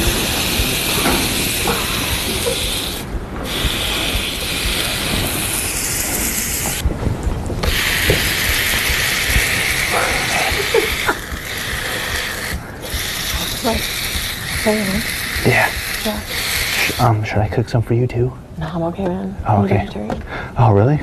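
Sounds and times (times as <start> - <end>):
meat sizzling on a grill: 0.0 - 6.8, 7.6 - 17.4.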